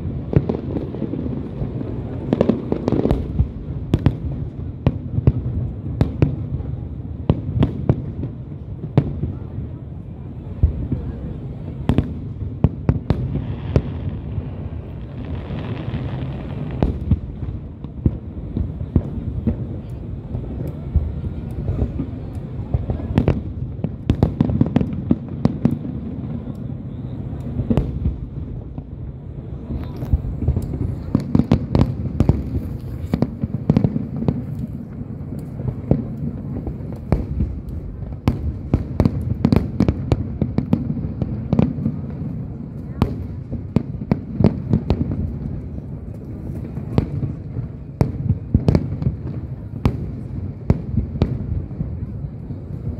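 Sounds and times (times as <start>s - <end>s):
fireworks cracks and booms: 0.0s - 52.9s
fireworks rumble: 0.0s - 52.9s.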